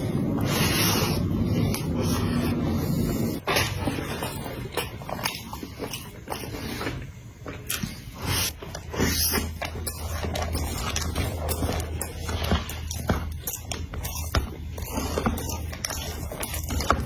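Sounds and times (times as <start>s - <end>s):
wet chewing and biting clicks: 3.4s - 17.0s.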